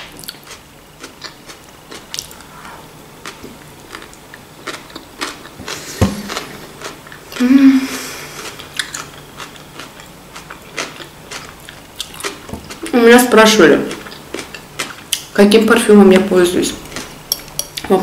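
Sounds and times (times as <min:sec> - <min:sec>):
person chewing wetly: 0:00.2 - 0:02.6, 0:03.2 - 0:07.4, 0:08.3 - 0:12.9, 0:13.9 - 0:15.3.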